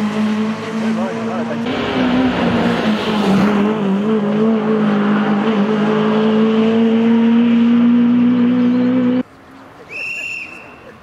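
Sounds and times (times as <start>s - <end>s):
car engine at high revs: 0.0s - 9.3s.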